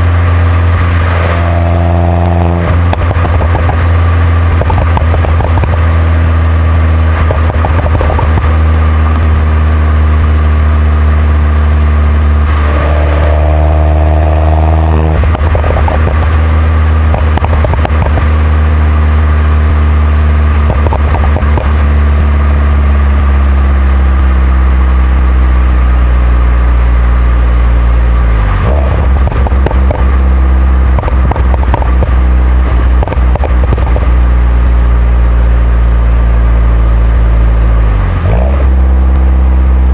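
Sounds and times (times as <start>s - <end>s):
car engine while driving: 0.0s - 39.9s.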